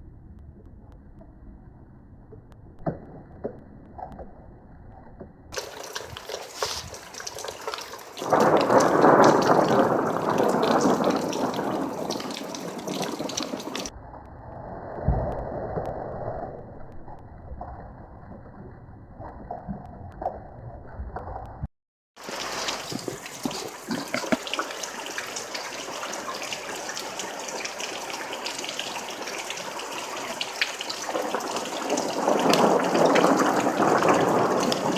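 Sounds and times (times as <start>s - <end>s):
rain hissing: 5.6s - 13.9s, 22.2s - 34.9s
thunder rumbling: 5.6s - 16.4s, 22.2s - 34.9s.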